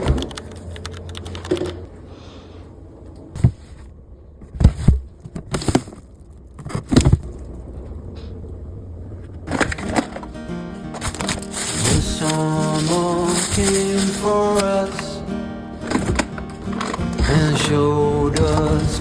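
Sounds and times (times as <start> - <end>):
food containers knocking and clattering: 9.5 - 13.8, 15.8 - 19.0.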